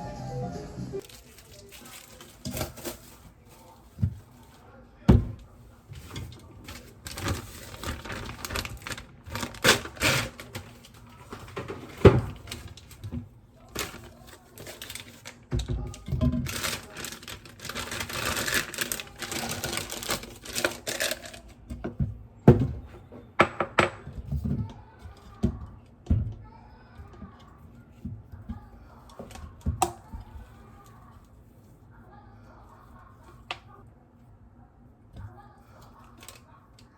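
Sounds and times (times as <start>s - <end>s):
scraping or rustling: 1.0s - 4.6s, 5.5s - 21.6s
objects clicking and clattering: 6.0s - 22.7s.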